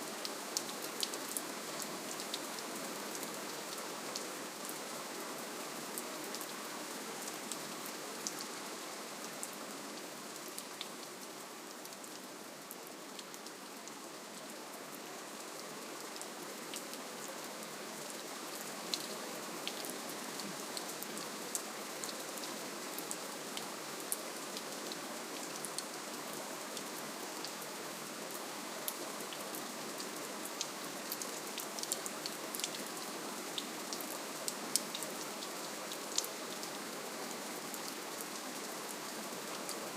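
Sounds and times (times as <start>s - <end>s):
gentle rainfall hiss: 0.0s - 39.9s
raindrops ticking on a surface: 0.2s - 4.8s, 34.7s - 36.8s.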